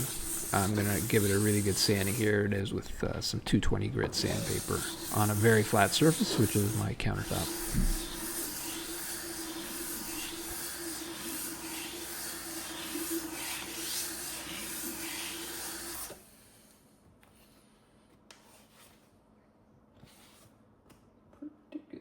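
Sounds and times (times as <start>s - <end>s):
metal rasping on sandpaper: 0.0s - 2.4s, 4.2s - 16.1s.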